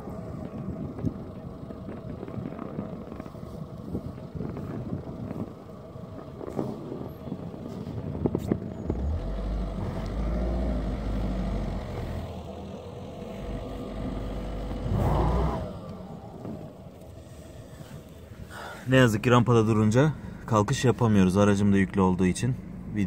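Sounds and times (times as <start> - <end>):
tyres spinning in snow: 0.1 - 20.0
car engine revving: 8.8 - 18.0.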